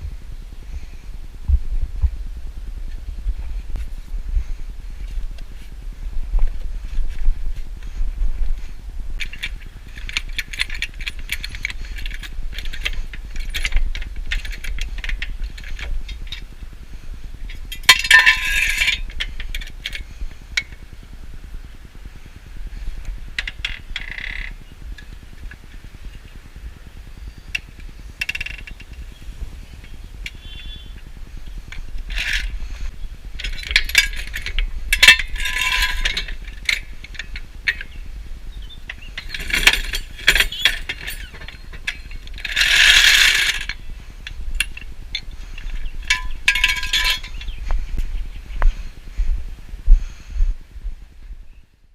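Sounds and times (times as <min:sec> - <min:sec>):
metal tools clicking and clinking: 0:09.2 - 0:16.4, 0:17.5 - 0:20.0, 0:31.7 - 0:38.0, 0:38.6 - 0:47.7
tools scraping on car parts: 0:17.8 - 0:19.6, 0:31.7 - 0:38.0, 0:38.9 - 0:43.8, 0:44.6 - 0:47.7.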